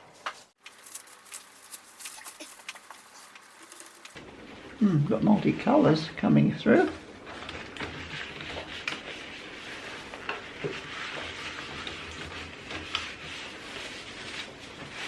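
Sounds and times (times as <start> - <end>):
crackly rustle of handling: 0.2 - 4.2.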